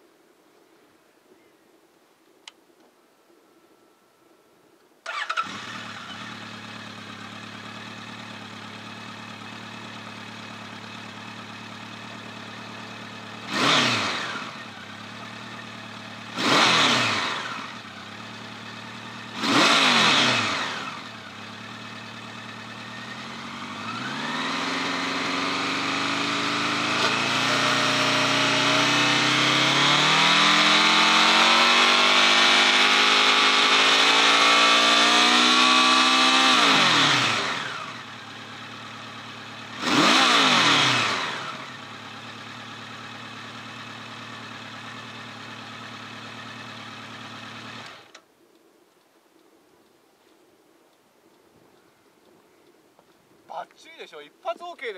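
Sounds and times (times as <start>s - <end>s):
motorcycle throttle blips: 5.0s - 34.7s
motorcycle engine starting and idling: 5.0s - 48.3s
motorcycle engine revving high: 5.1s - 48.1s.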